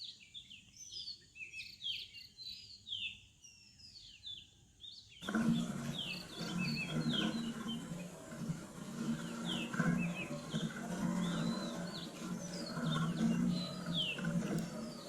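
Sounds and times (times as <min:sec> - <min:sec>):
small birds chirping: 0:00.0 - 0:15.0
low hum: 0:05.2 - 0:15.0.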